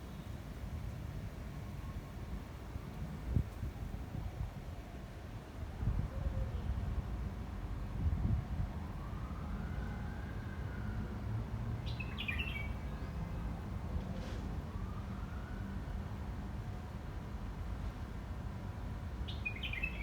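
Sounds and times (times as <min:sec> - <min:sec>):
wind rumbling on microphone: 0:03.0 - 0:04.8, 0:05.7 - 0:07.0, 0:07.8 - 0:09.4
distant siren wailing: 0:08.9 - 0:11.5, 0:14.6 - 0:16.0.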